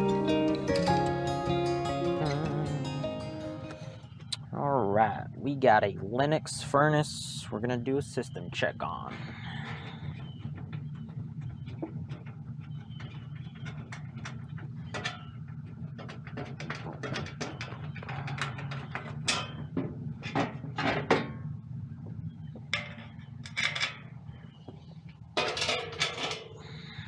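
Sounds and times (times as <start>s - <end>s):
steady low hum: 0.0s - 27.0s
sheet metal panels rattling: 25.4s - 26.6s.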